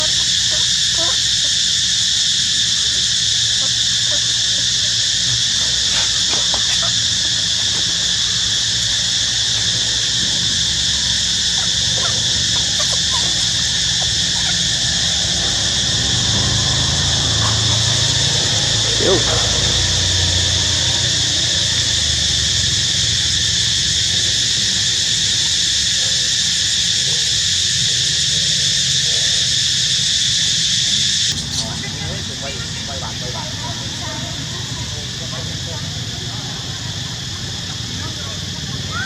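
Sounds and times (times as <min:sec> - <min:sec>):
insect chorus drone: 0:00.0 - 0:39.0
faint short chirps and calls: 0:31.3 - 0:32.8.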